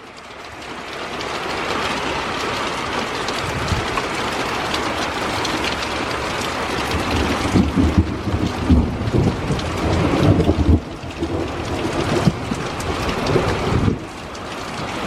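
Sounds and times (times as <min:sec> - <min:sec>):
heavy rain downpour: 0:00.0 - 0:15.0
thunder rumbling: 0:03.2 - 0:09.6.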